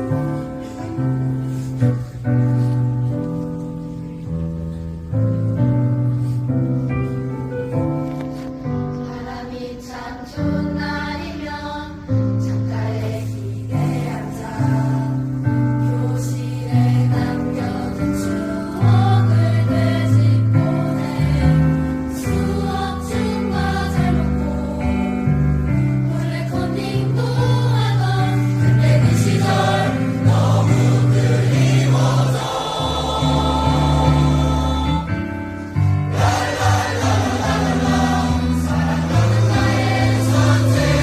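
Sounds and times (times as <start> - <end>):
instrumental accompaniment: 0.0 - 41.0
choir singing: 8.7 - 41.0.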